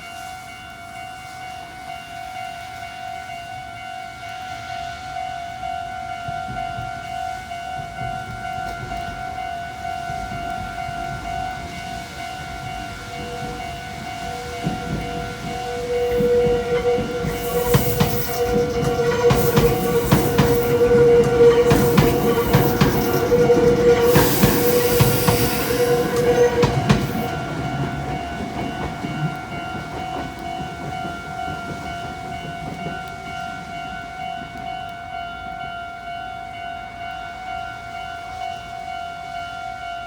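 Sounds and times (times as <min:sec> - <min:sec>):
crossing warning bells ringing: 0:00.0 - 0:40.0
train wheels clicking over rail joints: 0:07.8 - 0:34.8.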